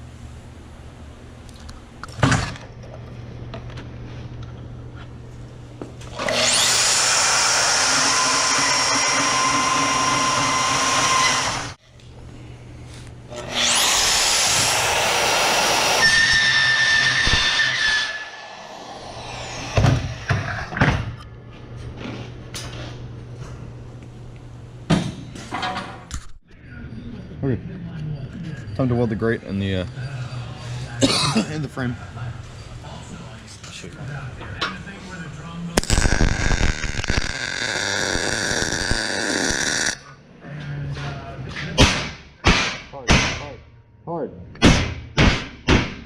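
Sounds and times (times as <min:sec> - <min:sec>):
angle grinder grinding steel: 0:06.2 - 0:11.8, 0:13.4 - 0:20.7, 0:35.8 - 0:40.0.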